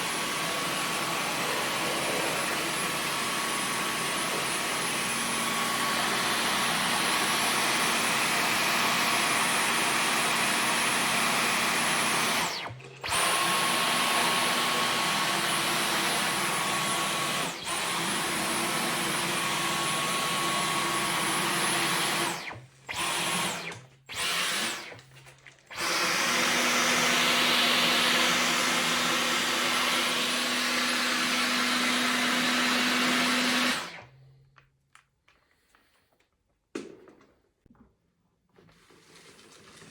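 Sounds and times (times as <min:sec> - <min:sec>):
vacuum cleaner whine: 0:00.0 - 0:25.0, 0:25.7 - 0:34.2.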